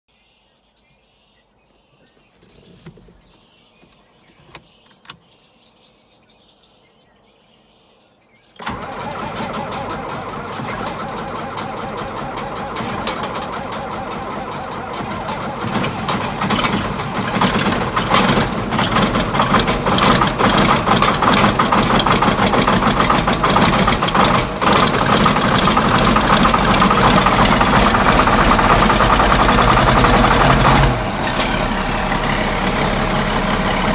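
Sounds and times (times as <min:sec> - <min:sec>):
diesel tractor engine starting: 0:08.6 - 0:33.9.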